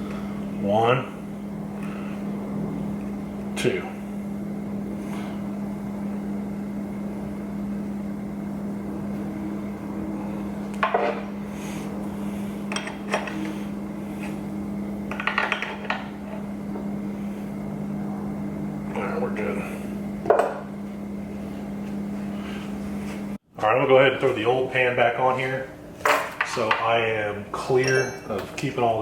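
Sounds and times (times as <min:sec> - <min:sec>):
steady low hum: 0:00.0 - 0:29.0
metal tools clinking: 0:27.8 - 0:28.5.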